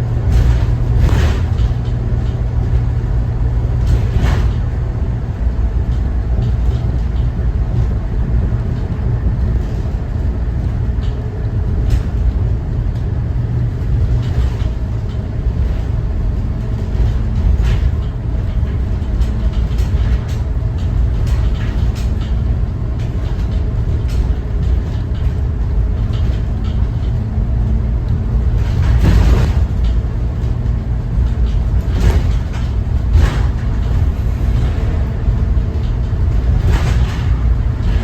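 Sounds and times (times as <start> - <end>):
bus diesel engine rumble: 0.0 - 38.0
rattles and bumps: 0.0 - 38.0
road noise: 0.0 - 38.0.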